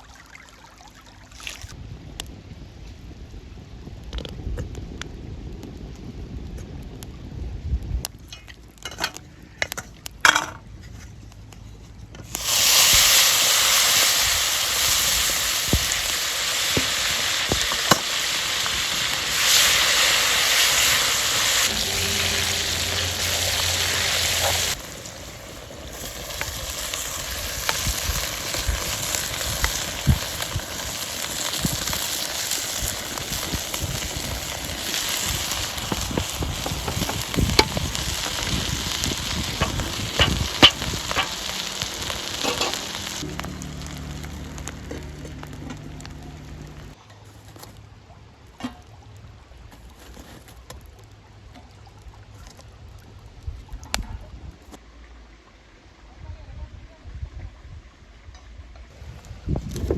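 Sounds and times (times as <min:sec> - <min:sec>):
food sizzling in hot oil: 0:12.3 - 0:47.0.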